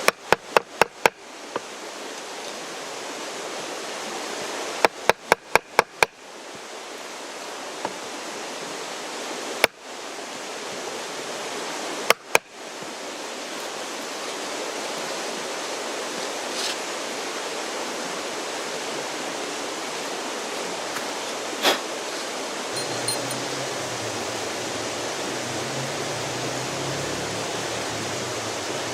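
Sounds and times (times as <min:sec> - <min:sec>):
mountain stream rushing: 0:00.0 - 0:28.9.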